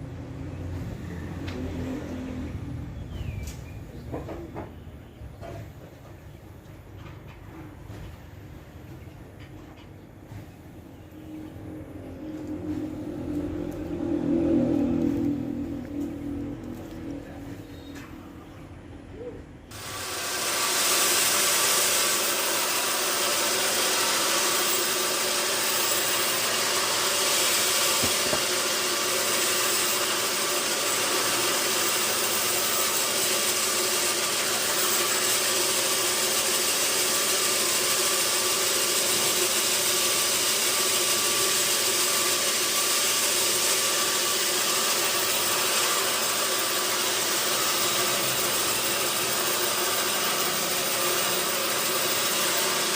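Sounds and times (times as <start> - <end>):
faint hum: 0.0 - 19.8
sawmill saw running: 11.6 - 18.1, 19.7 - 52.9.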